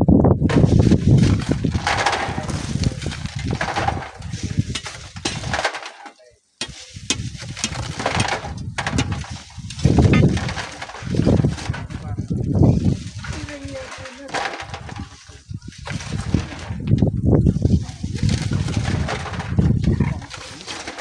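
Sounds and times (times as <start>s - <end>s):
strong wind buffeting microphone: 0.0s - 5.6s, 6.7s - 14.0s, 14.6s - 20.5s.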